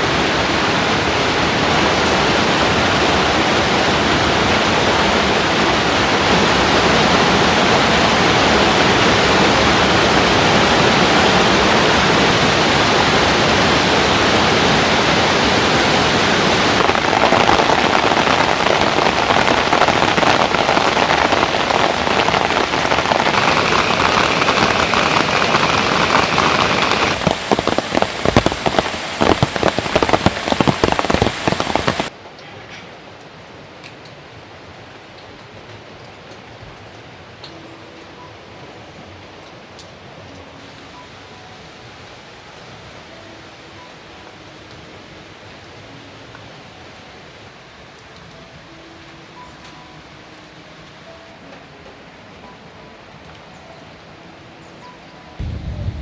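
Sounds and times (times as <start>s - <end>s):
rain falling: 0.0s - 56.0s
separate raindrops striking: 4.3s - 32.2s.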